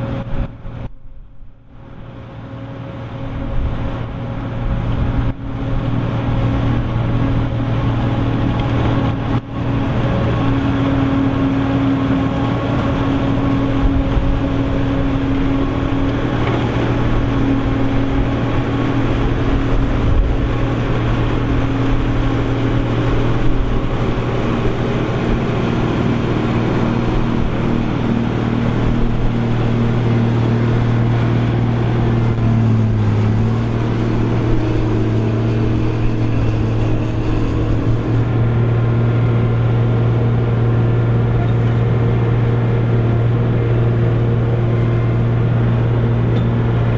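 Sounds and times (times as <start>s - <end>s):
forage harvester engine drone: 0.0s - 46.9s.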